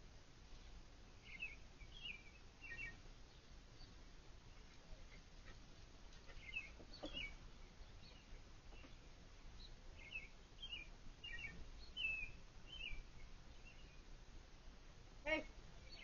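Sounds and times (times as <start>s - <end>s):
low background hiss: 0.0s - 16.0s
faint bird chirps: 1.2s - 5.2s, 6.3s - 14.1s, 15.3s - 16.0s.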